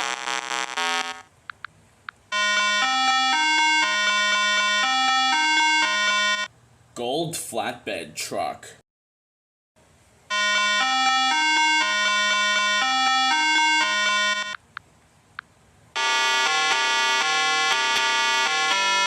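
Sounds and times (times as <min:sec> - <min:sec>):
buzzy electronic melody: 0:02.4 - 0:06.5, 0:10.3 - 0:14.6, 0:16.0 - 0:19.0.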